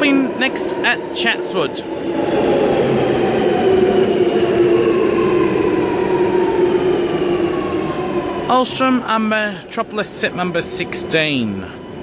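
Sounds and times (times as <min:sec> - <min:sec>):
metro train motor whine: 0:00.0 - 0:12.0.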